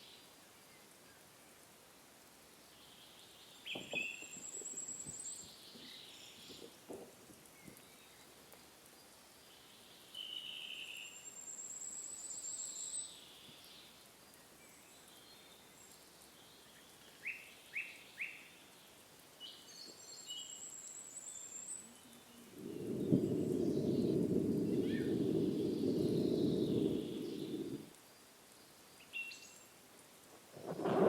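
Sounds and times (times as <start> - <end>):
low rushing noise: 22.5 - 27.9.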